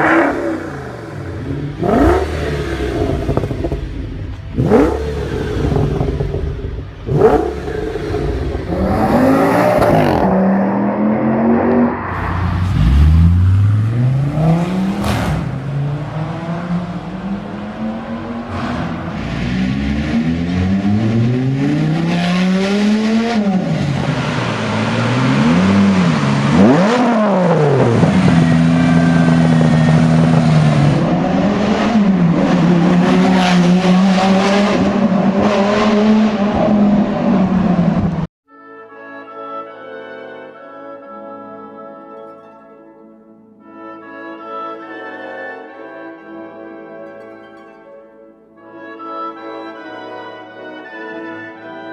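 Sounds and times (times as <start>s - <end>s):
car engine revving and accelerating: 0.0s - 38.3s.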